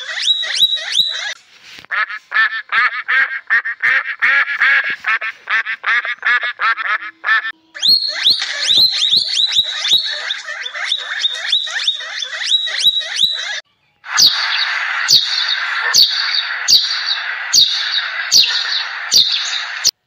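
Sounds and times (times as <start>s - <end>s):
flock of sparrows chirping: 0.0s - 1.4s, 7.8s - 20.0s
rapid high-pitched chirping calls: 0.0s - 1.4s, 7.8s - 20.0s.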